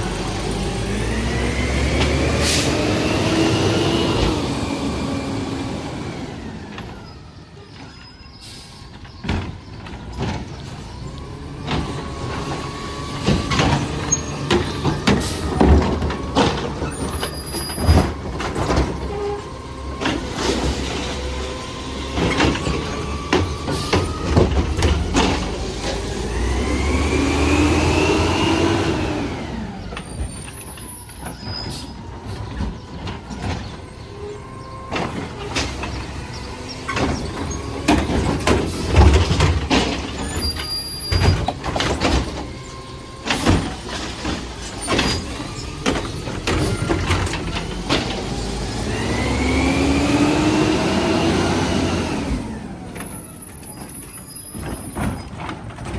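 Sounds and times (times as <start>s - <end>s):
diesel engine revving: 0.0s - 7.4s, 10.4s - 31.0s, 31.7s - 53.8s
air brake hisses: 8.4s - 8.9s
bangs and knocks of carts: 8.9s - 55.9s.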